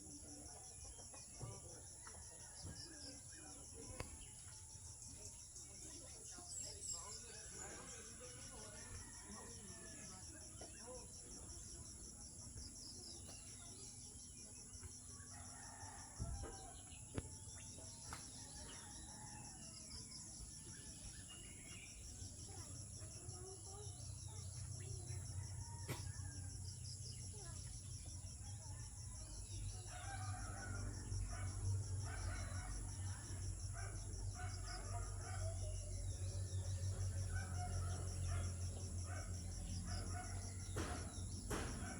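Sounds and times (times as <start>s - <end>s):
insects chirring: 0.0s - 41.9s.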